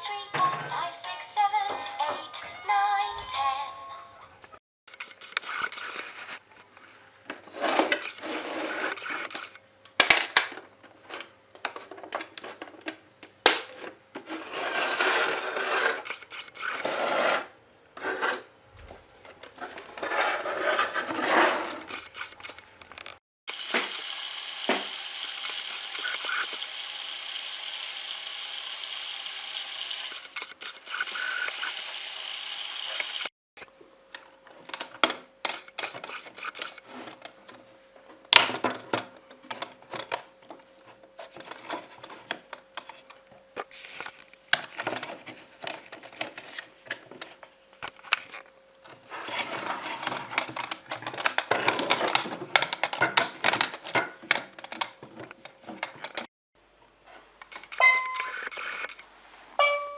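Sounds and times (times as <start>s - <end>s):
small hard clicks and rattles: 50.0s - 56.3s.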